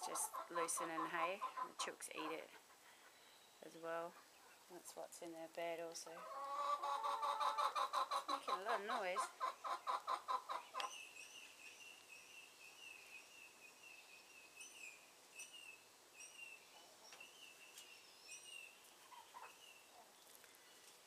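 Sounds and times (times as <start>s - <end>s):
chickens peeping: 0.0s - 4.7s, 6.1s - 12.1s, 16.8s - 20.9s.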